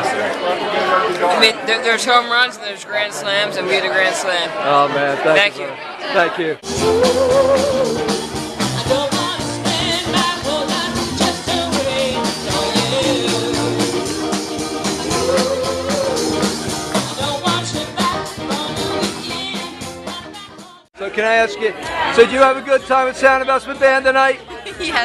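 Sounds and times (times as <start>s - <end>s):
backing instruments: 6.6s - 20.6s
drum beat: 6.6s - 20.8s
person singing: 6.6s - 20.8s.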